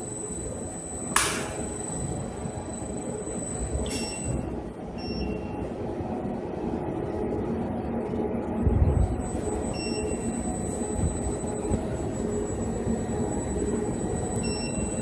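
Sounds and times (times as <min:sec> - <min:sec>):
sharp click: 0:01.1 - 0:01.6.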